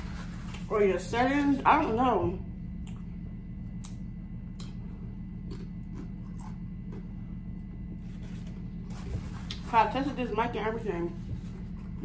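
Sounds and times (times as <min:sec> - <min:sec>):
steady low hum: 0:00.0 - 0:12.0
chewing crunchy chip: 0:05.4 - 0:07.2.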